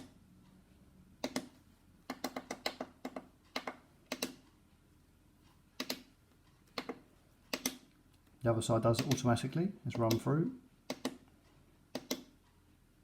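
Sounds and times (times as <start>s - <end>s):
plastic buttons clicking: 1.2s - 4.4s, 6.7s - 7.9s, 8.9s - 9.3s, 10.9s - 11.2s.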